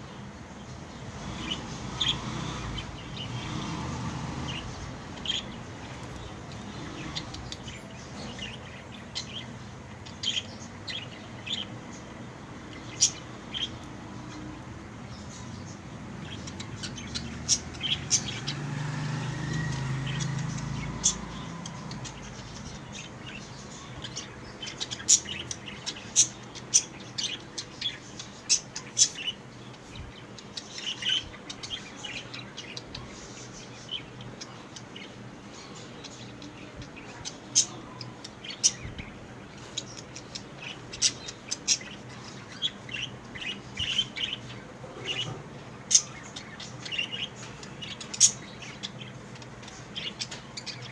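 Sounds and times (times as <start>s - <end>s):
budgerigars chirping: 15.1s - 50.9s.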